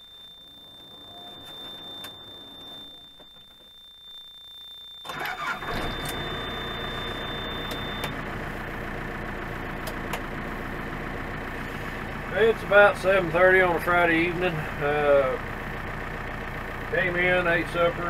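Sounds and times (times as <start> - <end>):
high warning tone: 0.0 - 8.2
diesel engine starting and idling: 5.0 - 18.0.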